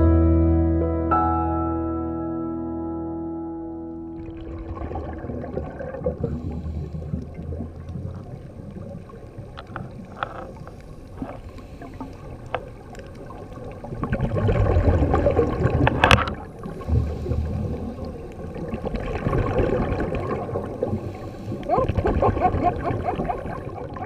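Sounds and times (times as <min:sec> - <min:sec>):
bubbling and gurgling: 0:04.2 - 0:24.0
muffled underwater rumble: 0:04.2 - 0:24.0
sharp underwater clicks: 0:07.2 - 0:16.8.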